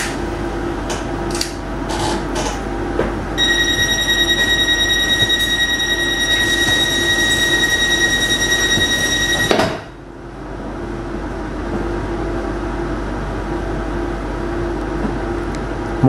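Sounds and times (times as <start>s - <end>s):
steady high-pitched squeal: 3.4s - 9.8s.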